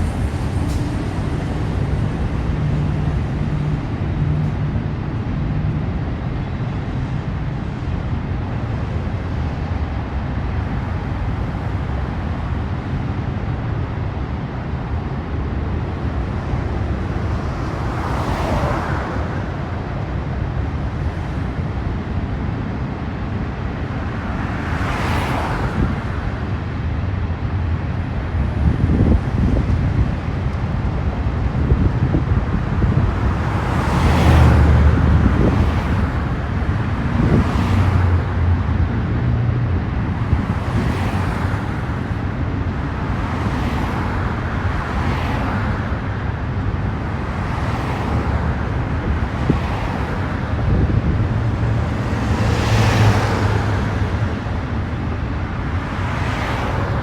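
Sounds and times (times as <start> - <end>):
freight train wheels rumbling: 0.0 - 7.8.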